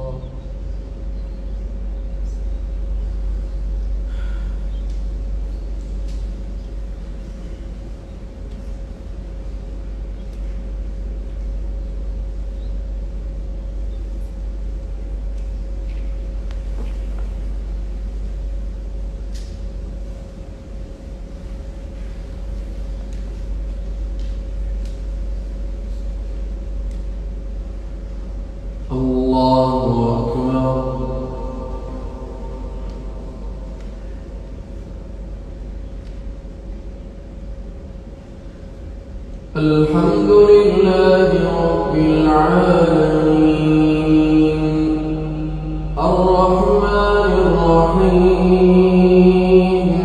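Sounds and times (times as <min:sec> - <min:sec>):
mid-pitched hum: 0:00.0 - 0:50.0
low rumble: 0:14.2 - 0:37.0, 0:38.7 - 0:50.0.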